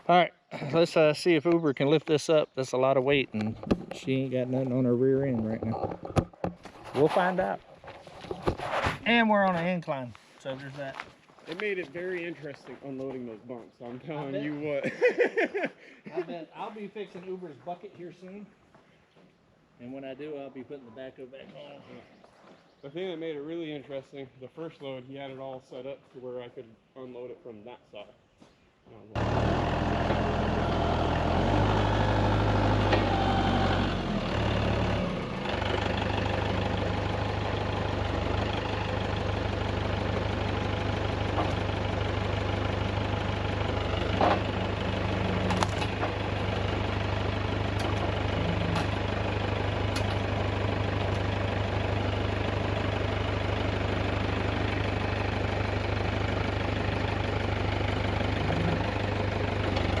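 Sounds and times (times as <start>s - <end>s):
tractor engine running: 29.2s - 60.0s.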